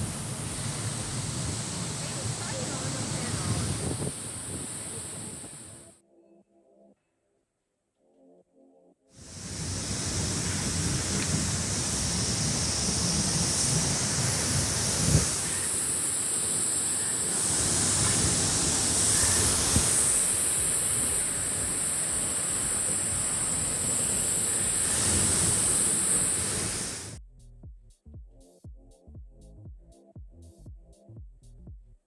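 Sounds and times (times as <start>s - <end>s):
waterfall rushing: 0.0s - 5.8s, 9.2s - 27.2s.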